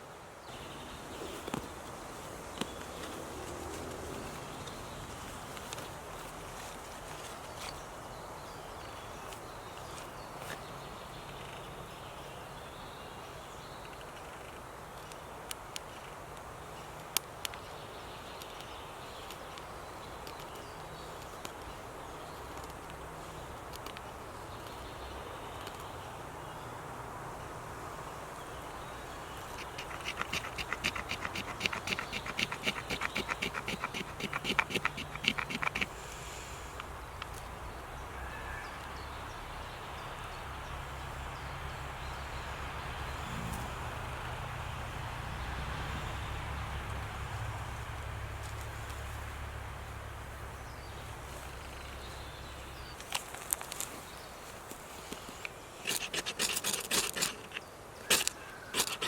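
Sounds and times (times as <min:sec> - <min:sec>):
woodland outdoor hush: 0:00.0 - 0:59.0
rapid sharp clicking: 0:29.4 - 0:36.0.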